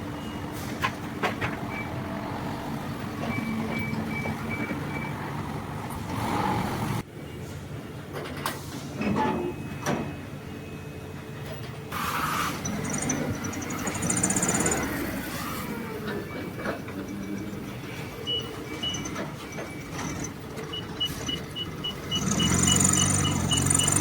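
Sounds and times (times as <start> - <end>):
high beeps: 17.8 - 24.0.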